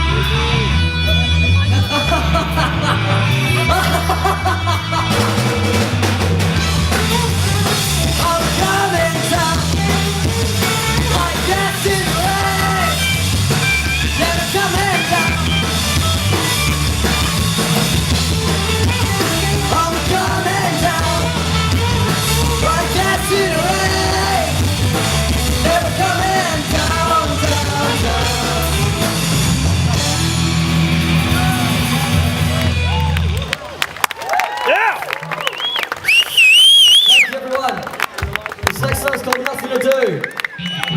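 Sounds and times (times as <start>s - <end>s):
heavy repeating bass line: 0.0s - 33.5s
live rock band playing: 0.0s - 33.6s
person singing: 6.9s - 13.0s, 14.0s - 15.6s, 18.9s - 30.2s.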